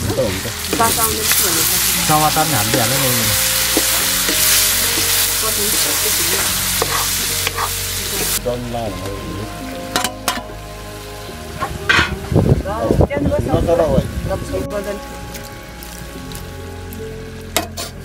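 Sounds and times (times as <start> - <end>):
meat sizzling in a wok: 0.0 - 18.0
metal spatula stirring: 0.6 - 8.4.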